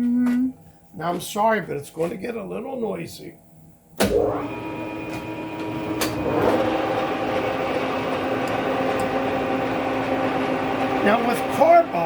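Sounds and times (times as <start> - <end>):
metal lathe humming: 4.3 - 12.0
harsh cutting noise: 6.0 - 12.0.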